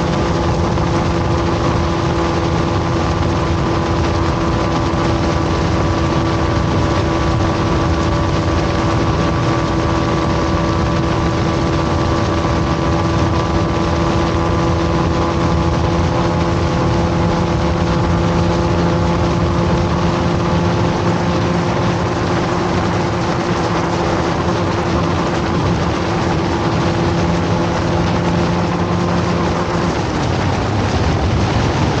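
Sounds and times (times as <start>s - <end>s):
motorcycle engine at high revs: 0.0s - 32.0s
wind rush over microphone: 0.0s - 32.0s.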